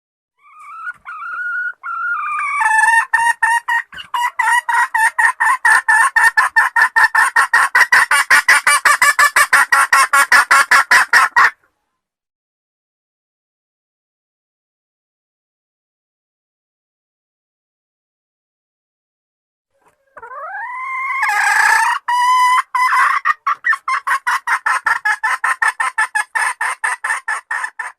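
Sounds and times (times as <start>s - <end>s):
junglefowl clucking: 0.4s - 11.7s, 19.8s - 27.9s.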